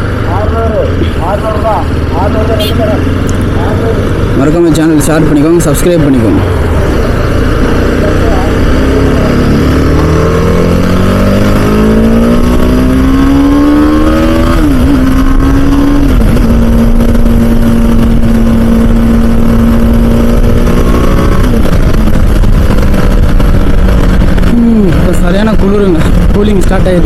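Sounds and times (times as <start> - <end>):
motorcycle engine revving: 0.0 - 27.0
wind rumble on microphone: 16.0 - 25.1.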